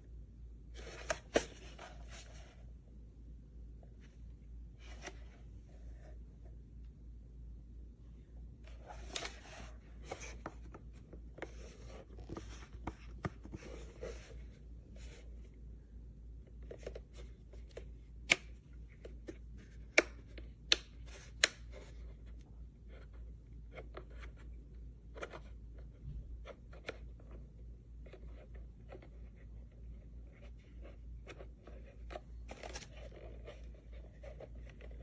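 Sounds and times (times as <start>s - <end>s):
handling rustling: 8.7s - 15.5s, 29.0s - 35.0s.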